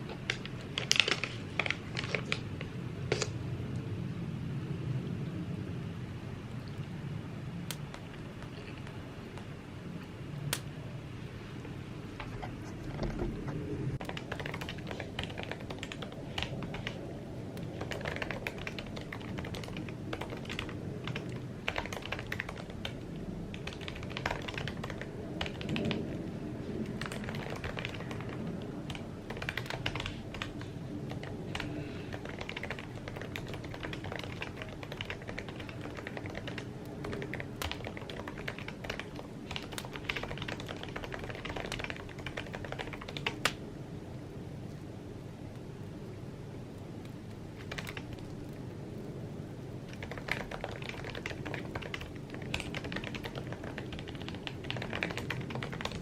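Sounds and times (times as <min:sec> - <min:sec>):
keyboard typing clicks: 0:14.0 - 0:17.0, 0:17.6 - 0:26.2, 0:26.8 - 0:43.6, 0:47.6 - 0:48.3, 0:49.9 - 0:56.0.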